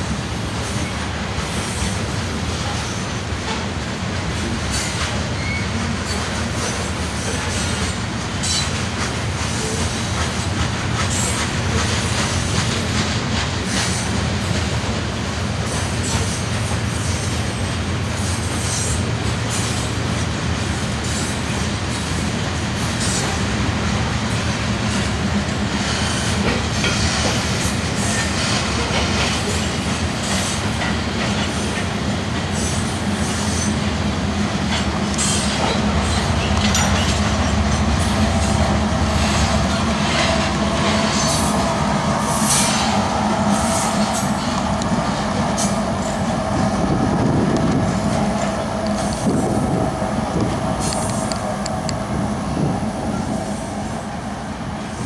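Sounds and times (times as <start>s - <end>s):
freight train wheel rumble: 0.0s - 55.0s
wheels clicking over rail joints: 24.9s - 32.9s, 34.6s - 43.2s.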